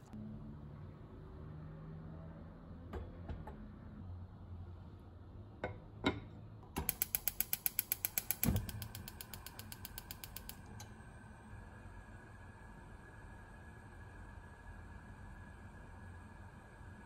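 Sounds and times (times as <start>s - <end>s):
fast sharp mechanical clicks: 6.8s - 10.8s.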